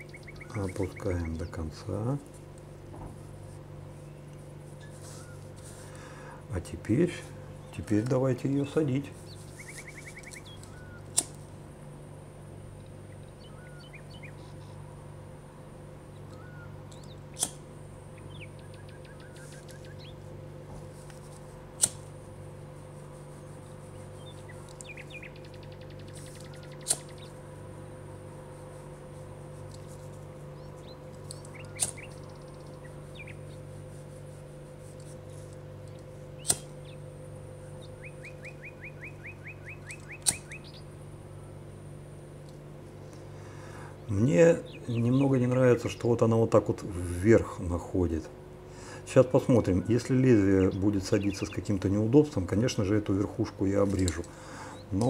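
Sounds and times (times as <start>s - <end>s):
small birds chirping: 0.0s - 2.2s, 4.0s - 6.3s, 7.4s - 11.2s, 12.9s - 14.8s, 16.0s - 17.5s, 18.1s - 20.3s, 23.9s - 27.5s, 29.2s - 34.1s, 36.1s - 41.6s, 43.1s - 46.2s, 49.2s - 52.7s
steady low hum: 0.0s - 55.0s
sharp click: 26.8s - 27.3s, 31.3s - 32.1s, 39.9s - 40.6s.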